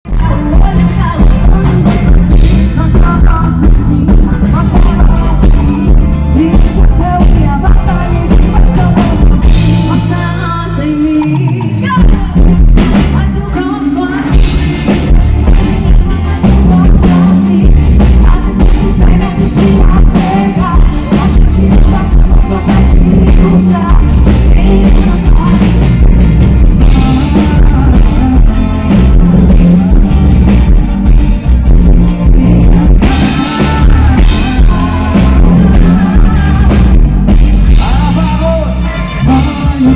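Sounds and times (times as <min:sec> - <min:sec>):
live pop-rock band playing: 0:00.0 - 0:39.9
person singing: 0:00.1 - 0:39.9.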